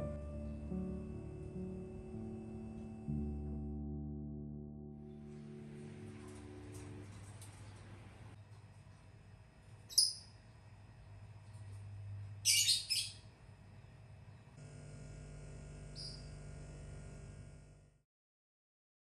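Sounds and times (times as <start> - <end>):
low steady hum: 0.0 - 12.5
small bird chirping: 9.8 - 10.4, 12.4 - 13.3, 15.9 - 16.4.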